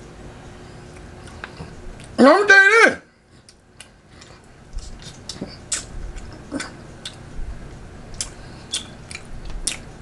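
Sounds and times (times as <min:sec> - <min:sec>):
person chewing meat: 0:00.8 - 0:02.2, 0:03.3 - 0:10.0
wet mouth clicks and lip smacks: 0:04.9 - 0:05.9, 0:08.1 - 0:09.9.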